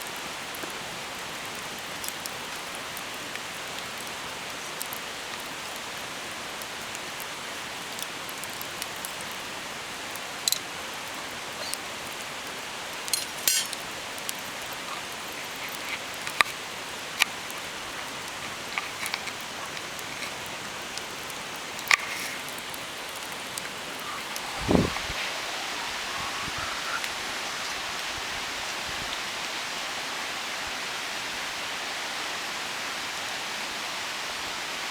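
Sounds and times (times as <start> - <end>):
wood fire crackling and popping: 0.1 - 25.3
fire hissing: 9.2 - 29.7.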